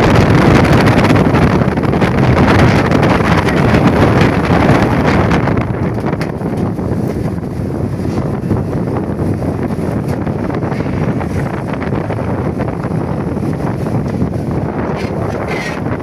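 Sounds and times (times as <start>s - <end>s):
heavy wind on microphone: 0.0s - 16.0s.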